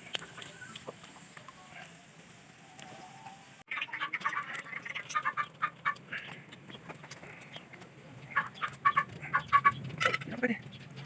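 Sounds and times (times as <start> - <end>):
fowl calling: 8.3 - 10.2.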